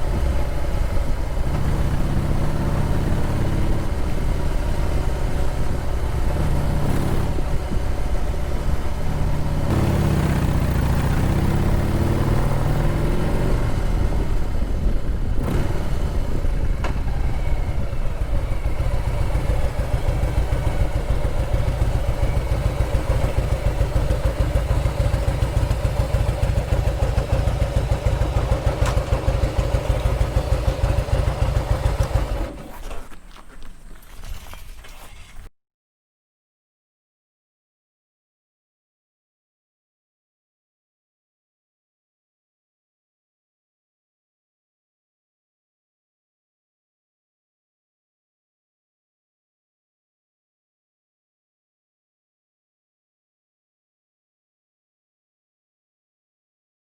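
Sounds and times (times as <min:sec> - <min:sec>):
motorcycle engine running: 0:00.0 - 0:34.1.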